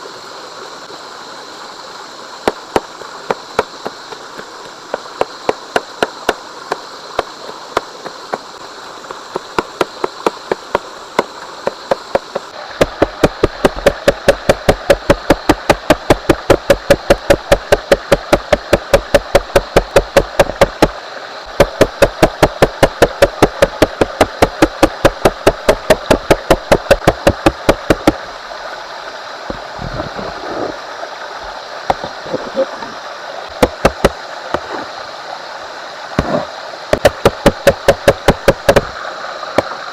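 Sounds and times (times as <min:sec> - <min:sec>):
running water: 0:00.0 - 0:39.9
knife chopping on cutting board: 0:09.4 - 0:20.9, 0:21.6 - 0:28.2, 0:33.6 - 0:34.7, 0:37.0 - 0:38.9.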